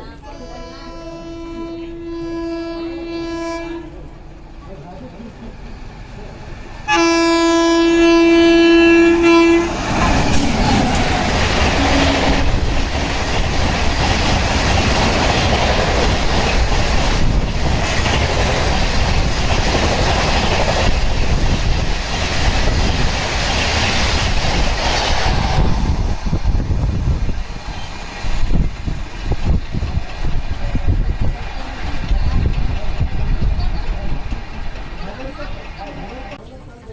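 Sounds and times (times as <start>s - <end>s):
train horn blast: 0.3s - 4.0s, 6.9s - 10.6s, 11.4s - 12.8s
train wheel clatter on rails: 9.7s - 36.7s.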